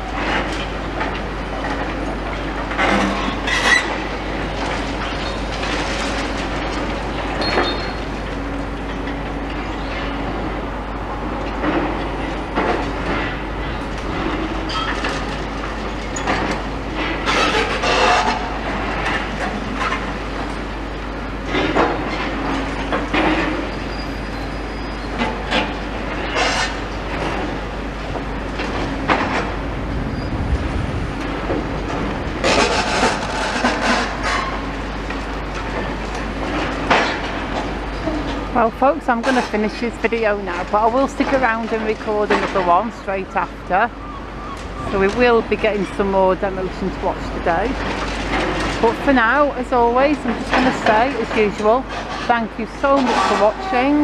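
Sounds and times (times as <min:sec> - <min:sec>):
demolition machine engine hum: 0:00.0 - 0:54.0
clattering and crunching: 0:31.9 - 0:38.4, 0:47.8 - 0:48.9.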